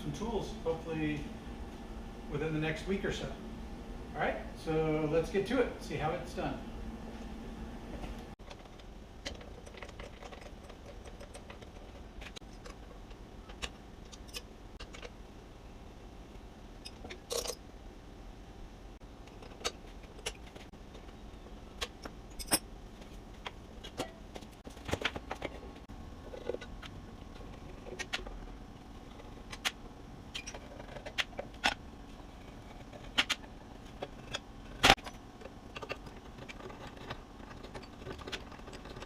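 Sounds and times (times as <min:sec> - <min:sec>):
metal tools clinking: 0:16.8 - 0:17.6, 0:22.3 - 0:22.7.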